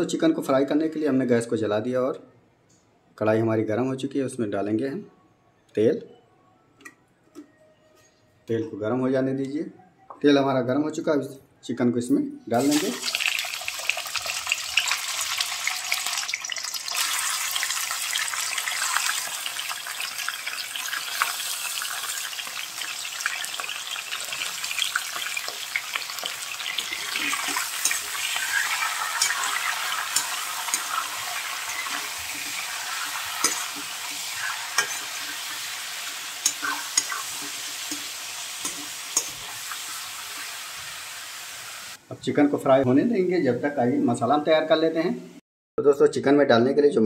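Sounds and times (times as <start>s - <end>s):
chicken sizzling in hot oil: 12.6s - 42.0s
metal spatula scraping pan: 26.6s - 39.9s.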